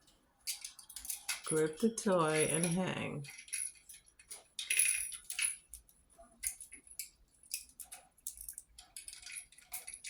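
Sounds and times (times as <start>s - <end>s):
parrot playing with hanging toy: 0.4s - 10.0s.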